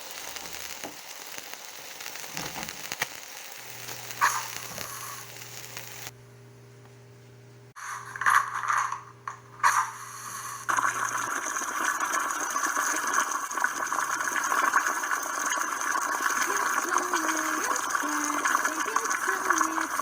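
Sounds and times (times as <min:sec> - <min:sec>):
water running: 0:00.0 - 0:02.9, 0:03.6 - 0:06.1, 0:07.8 - 0:20.0
short noisy bursts: 0:01.3 - 0:06.1.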